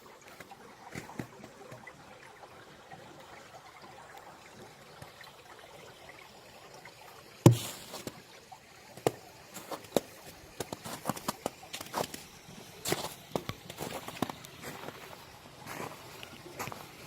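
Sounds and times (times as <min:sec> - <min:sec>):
stream trickling: 0:00.0 - 0:17.0
footsteps crunching on leaves: 0:13.8 - 0:16.9.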